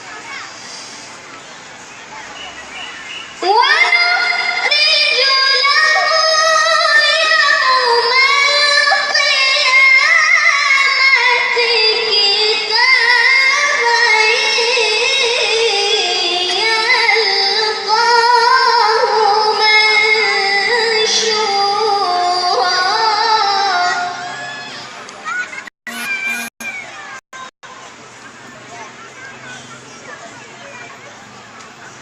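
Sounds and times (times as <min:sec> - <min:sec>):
child chanting: 0:02.3 - 0:24.9.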